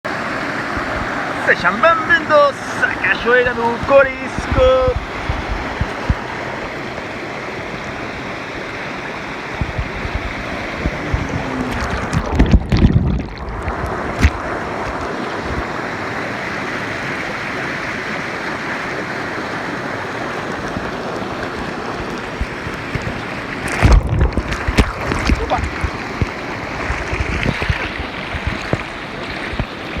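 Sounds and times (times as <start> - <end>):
waterfall rushing: 0.1 - 30.0
microphone buffeting: 4.4 - 6.3, 9.6 - 15.6, 22.4 - 28.9.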